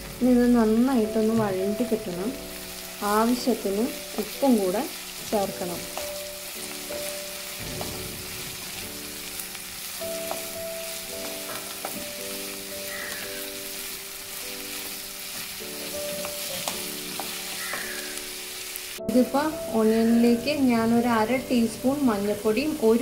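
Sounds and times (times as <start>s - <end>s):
onions sizzling in hot oil: 0.0s - 23.0s
soft background music: 0.0s - 23.0s.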